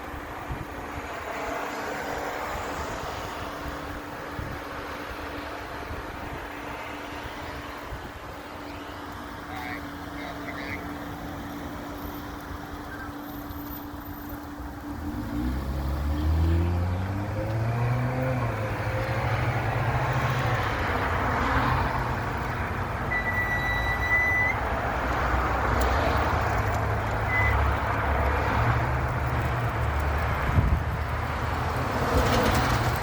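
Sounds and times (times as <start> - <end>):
road traffic: 0.0 - 33.0
vehicle engine pulling away: 10.8 - 33.0
short high beep: 23.1 - 24.6, 27.3 - 27.6.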